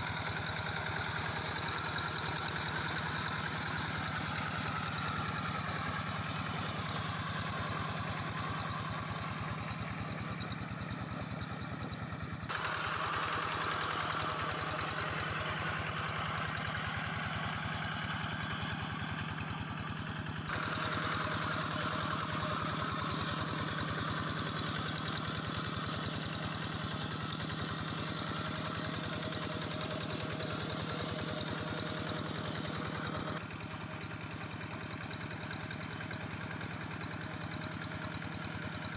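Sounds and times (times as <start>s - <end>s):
hand tractor engine running: 20.5s - 25.7s.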